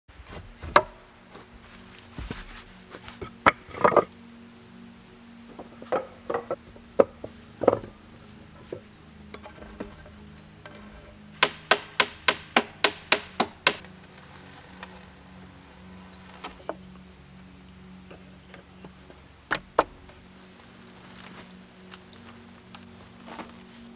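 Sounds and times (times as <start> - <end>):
tool striking wood: 11.4 - 13.9.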